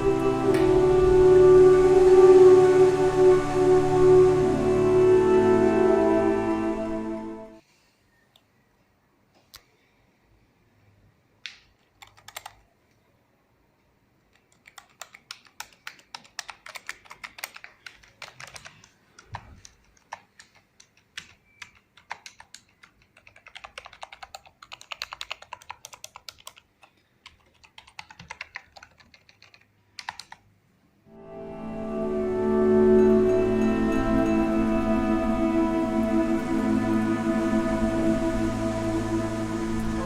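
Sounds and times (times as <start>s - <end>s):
keyboard typing: 11.8s - 12.7s, 14.3s - 30.4s.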